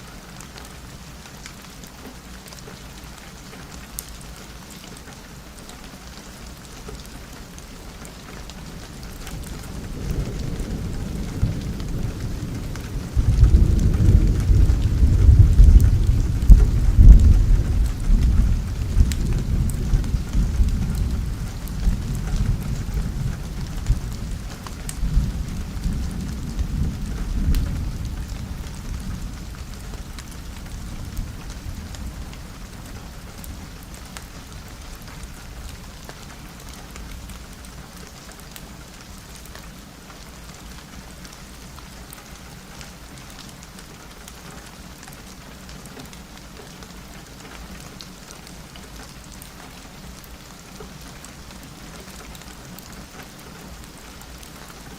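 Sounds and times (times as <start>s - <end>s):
rain on a window: 0.0s - 54.9s
low roll of thunder: 8.6s - 37.5s.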